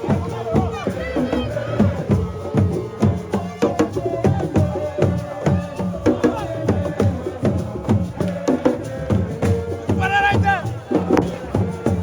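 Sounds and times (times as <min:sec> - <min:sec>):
drums in quick rhythm: 0:00.0 - 0:12.0.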